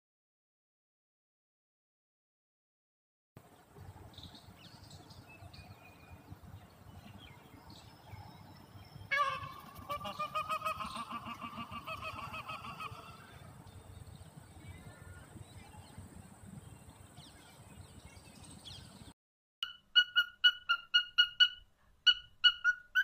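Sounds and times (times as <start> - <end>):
bird pulsed call: 19.6 - 23.0.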